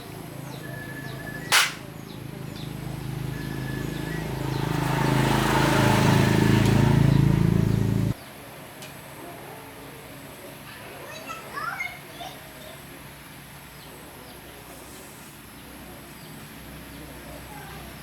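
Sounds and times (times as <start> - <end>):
sharp click: 1.5 - 1.9
machine humming: 4.2 - 8.2.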